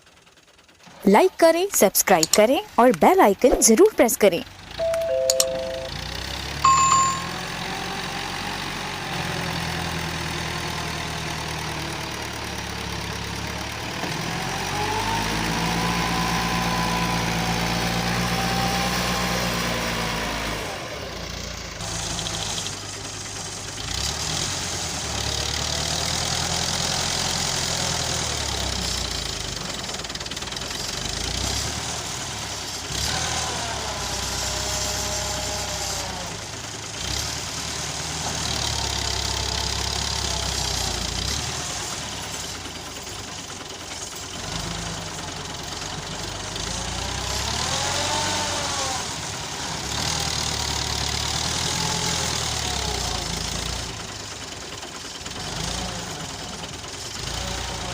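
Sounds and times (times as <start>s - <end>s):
tractor diesel engine under load: 0.0s - 57.9s.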